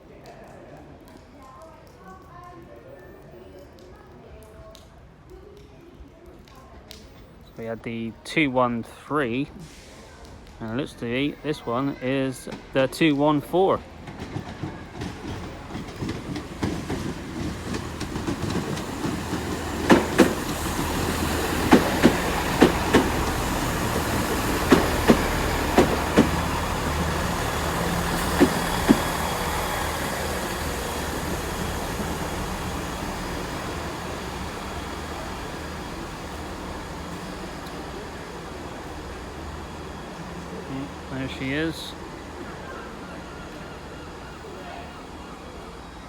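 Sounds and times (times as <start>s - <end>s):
train engine humming: 7.8s - 46.0s
train wheels clicking over rail joints: 12.4s - 42.2s.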